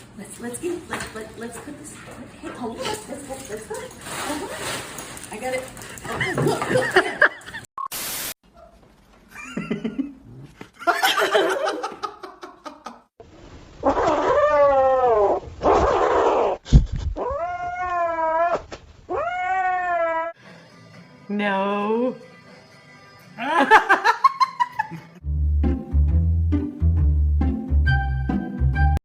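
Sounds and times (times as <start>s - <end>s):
cat yowling: 13.8s - 16.6s, 17.2s - 20.4s.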